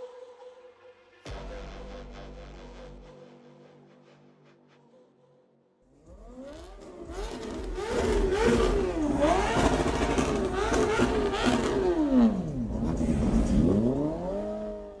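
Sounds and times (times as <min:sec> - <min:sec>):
car engine revving: 0:06.0 - 0:15.0.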